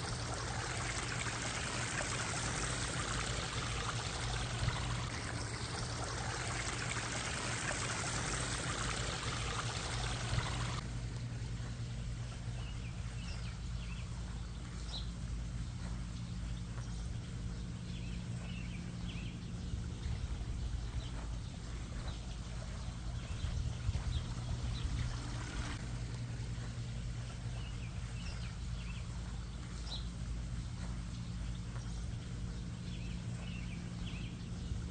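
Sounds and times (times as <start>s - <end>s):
waterfall splashing and trickling: 0.0s - 10.8s
steady low hum: 0.0s - 34.9s.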